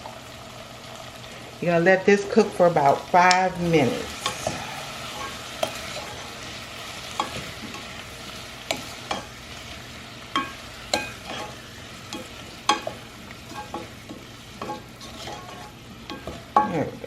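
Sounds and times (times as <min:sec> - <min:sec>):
potatoes sizzling in a pot: 0:00.0 - 0:17.0.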